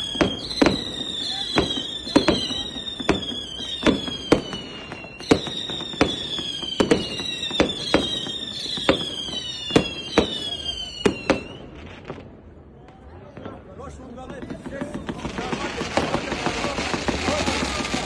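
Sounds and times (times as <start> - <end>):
high falling whistle: 0.0 - 11.8.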